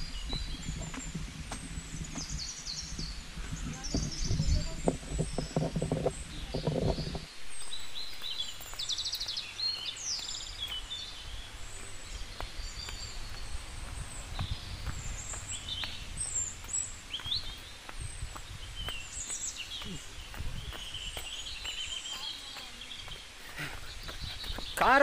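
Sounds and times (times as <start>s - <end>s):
low microphone rumble: 0.0s - 8.8s, 10.4s - 21.9s
birds chirping and whistling: 0.0s - 25.0s.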